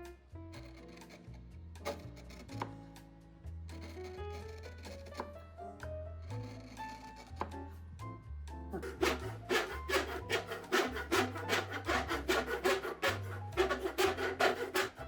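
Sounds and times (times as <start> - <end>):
hand tool rasping wood: 0.5 - 2.8, 3.7 - 5.4, 6.2 - 7.6, 8.7 - 15.0.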